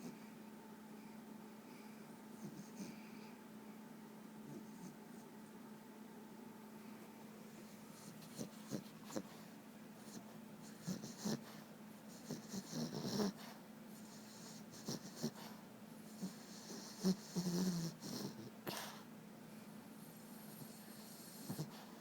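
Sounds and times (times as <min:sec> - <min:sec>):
dog snoring: 0:02.3 - 0:03.3, 0:04.4 - 0:05.2, 0:08.0 - 0:09.4, 0:10.0 - 0:19.0, 0:20.0 - 0:22.0.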